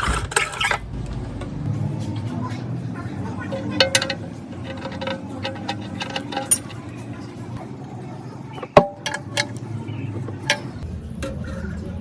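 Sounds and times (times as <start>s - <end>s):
metal knocks and clinks: 3.4s - 7.6s, 8.5s - 11.4s.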